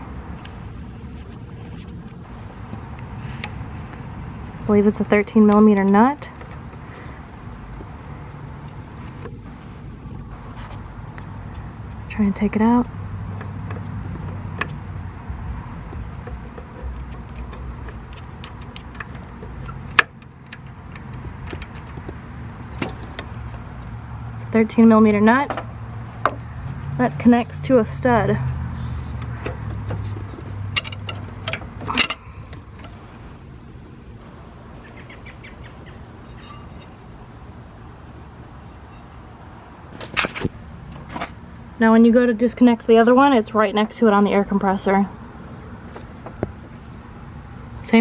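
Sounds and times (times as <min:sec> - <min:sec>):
metallic clink: 0:36.1 - 0:37.4.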